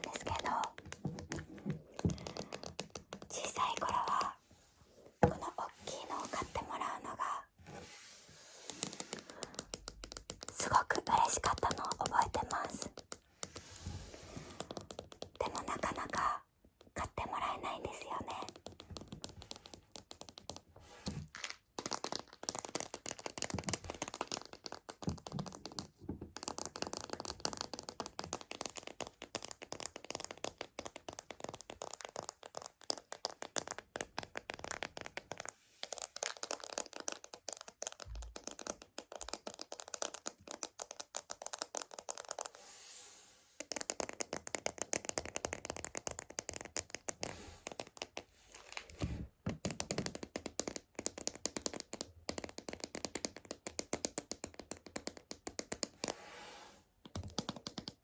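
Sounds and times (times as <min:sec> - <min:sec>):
fingers tapping plastic container: 0:00.0 - 0:04.4, 0:09.0 - 0:13.3, 0:14.6 - 0:20.7, 0:21.7 - 0:35.5, 0:36.2 - 0:42.5, 0:43.6 - 0:47.2, 0:57.1 - 0:58.0.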